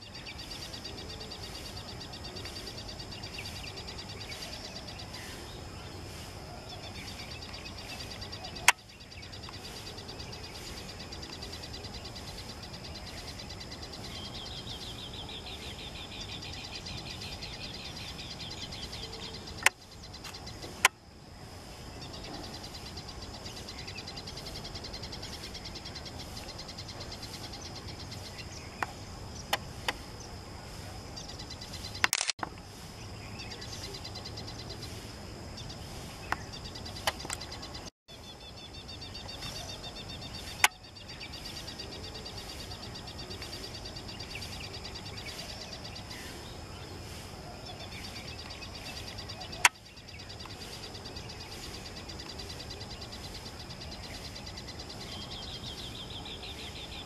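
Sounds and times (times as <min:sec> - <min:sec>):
small birds chirring and trilling: 0:00.0 - 0:57.0
sharp clicks: 0:32.0 - 0:32.6.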